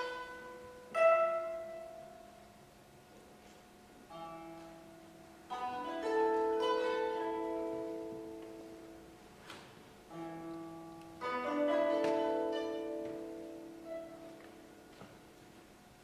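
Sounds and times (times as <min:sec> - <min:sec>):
koto plucked runs: 0:10.1 - 0:14.9.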